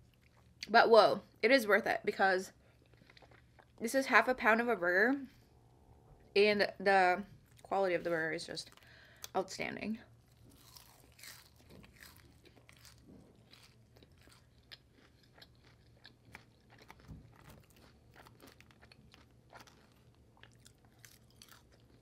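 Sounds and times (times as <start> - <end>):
low steady hum: 0.0 - 22.0
crunchy chewing: 2.6 - 3.8, 10.3 - 22.0.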